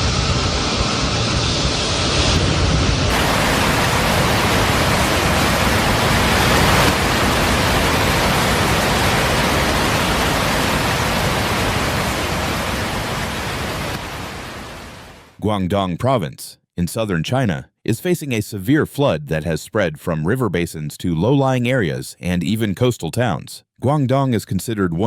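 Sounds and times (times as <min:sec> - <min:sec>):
water rushing: 0:03.1 - 0:15.3.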